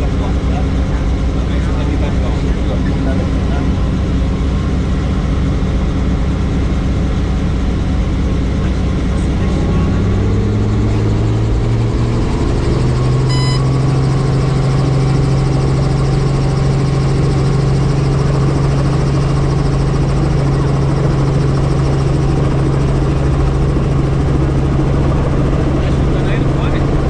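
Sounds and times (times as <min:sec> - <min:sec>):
helicopter running: 0:00.0 - 0:27.0
short beep: 0:13.3 - 0:13.8.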